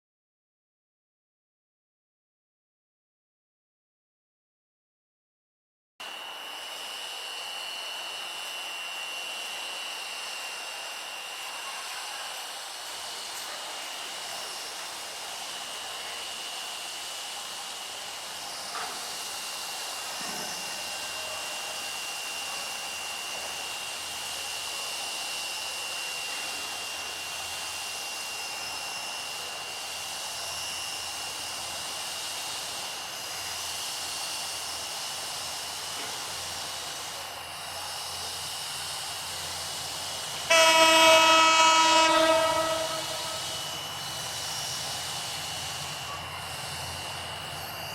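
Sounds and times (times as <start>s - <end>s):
diesel locomotive horn blast: 40.4s - 44.0s
thin high tone: 40.5s - 44.9s.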